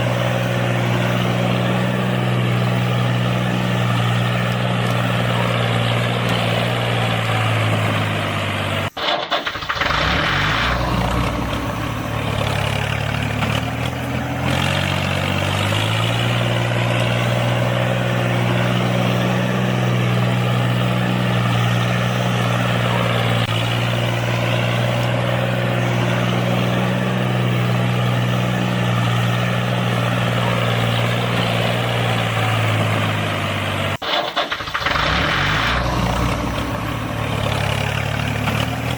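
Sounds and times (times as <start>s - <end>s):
engine idling: 0.0s - 38.9s
low engine sound rising: 9.8s - 34.0s, 34.8s - 38.9s.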